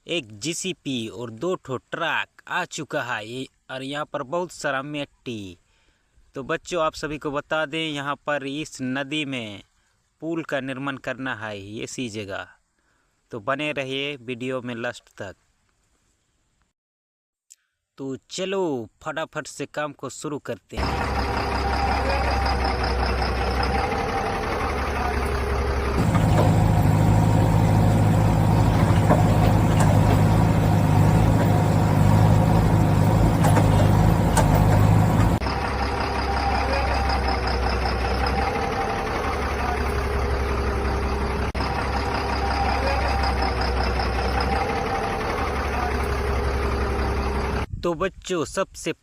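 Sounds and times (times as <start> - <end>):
deep engine drone: 20.8 - 47.7
heavy vehicle engine idling: 20.8 - 47.7.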